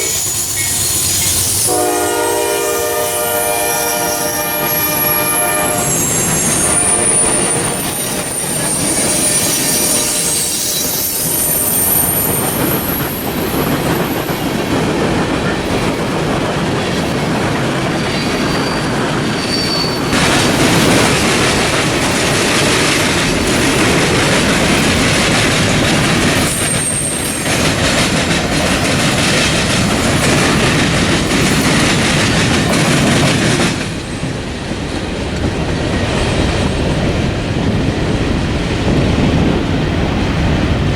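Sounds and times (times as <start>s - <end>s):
high wheel squeals: 0.0s - 14.4s, 18.0s - 20.2s, 25.7s - 27.9s
train cars clattering over rails: 0.0s - 40.9s
locomotive horn blast: 1.6s - 8.4s, 9.0s - 10.8s.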